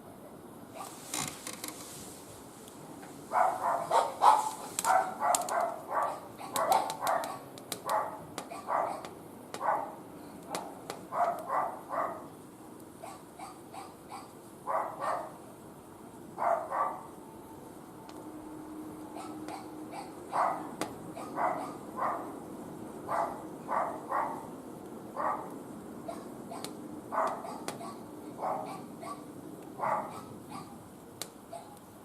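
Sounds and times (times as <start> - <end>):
wood fire crackling: 0.9 - 13.0, 18.0 - 18.2, 30.8 - 32.0
dog barking: 3.3 - 12.3, 13.0 - 15.4, 16.4 - 17.1, 19.1 - 22.3, 23.1 - 24.5, 25.2 - 30.8, 31.5 - 31.8.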